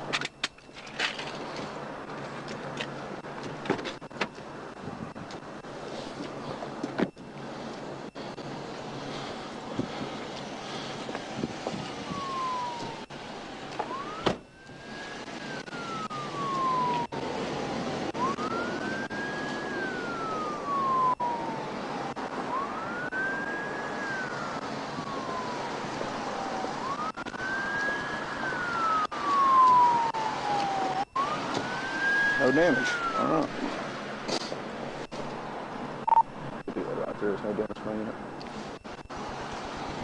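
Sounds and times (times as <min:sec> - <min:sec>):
police siren wailing: 0:03.2 - 0:33.9.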